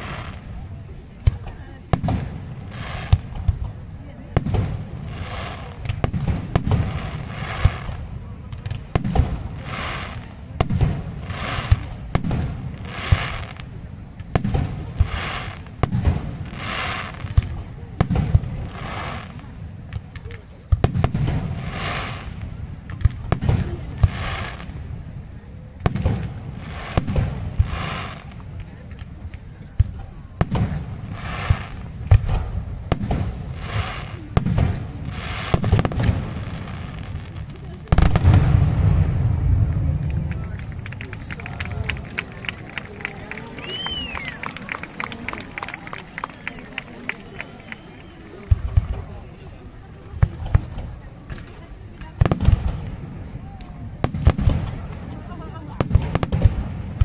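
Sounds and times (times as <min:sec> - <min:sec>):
fireworks bursting with bangs: 0:00.0 - 0:57.0
fireworks crackling: 0:00.0 - 0:57.0
low rumble of booms: 0:37.9 - 0:40.3.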